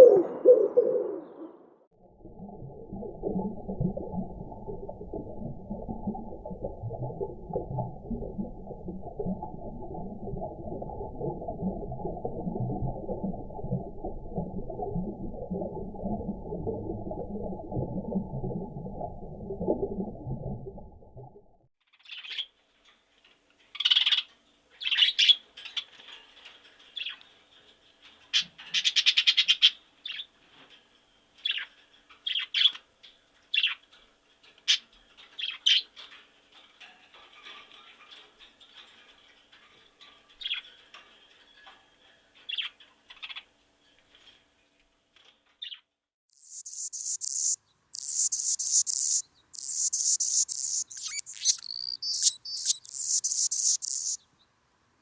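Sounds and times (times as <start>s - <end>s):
high animal chirps: 46.4s - 54.2s.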